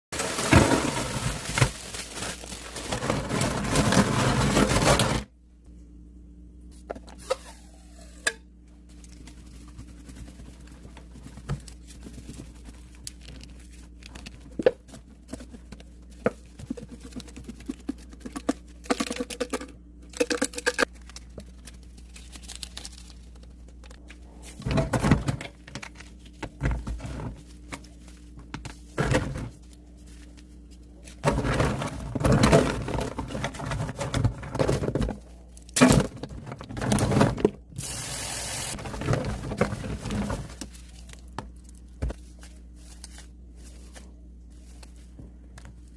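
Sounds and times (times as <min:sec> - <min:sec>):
faint steady hum: 0:00.2 - 0:45.9
cleanser powder crunching: 0:38.7 - 0:45.9.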